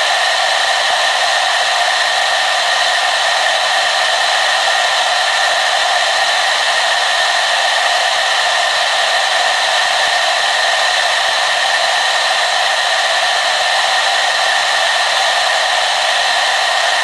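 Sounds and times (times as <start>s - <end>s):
hair dryer running: 0.0s - 17.0s.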